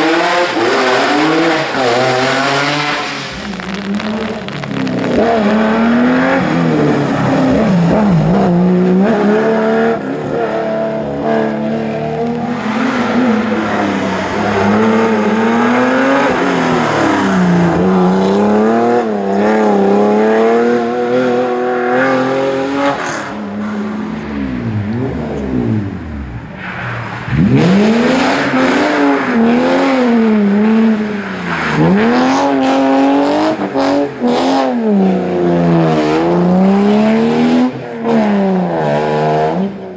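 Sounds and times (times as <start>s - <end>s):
rally car engines revving: 0.0s - 39.9s.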